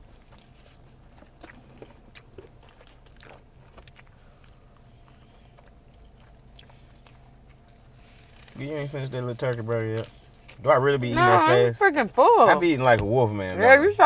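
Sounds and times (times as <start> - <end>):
steady low hum: 0.0 - 14.0
chewing and biting food: 0.1 - 8.6.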